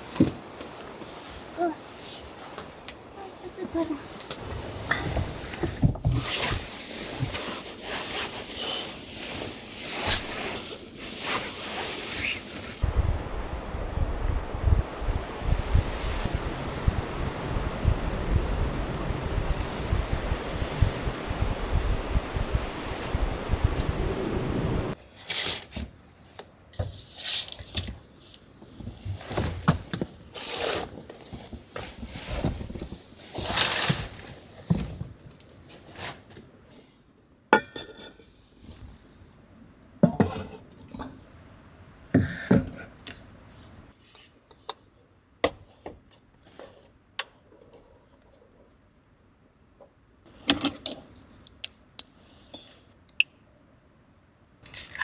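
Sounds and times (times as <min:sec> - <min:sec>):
rustling: 0:00.0 - 0:13.6
dishes and cutlery clinking: 0:37.6 - 0:38.4.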